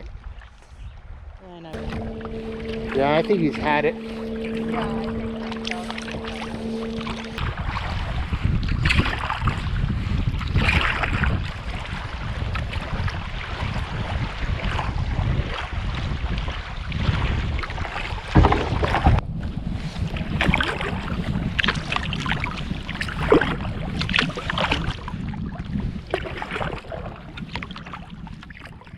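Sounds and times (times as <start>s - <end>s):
wind buffeting microphone: 0.0s - 28.9s
paddle splash: 1.8s - 8.1s, 20.4s - 25.3s, 26.1s - 28.9s
water sloshing and splashing: 1.8s - 19.2s, 20.4s - 28.9s.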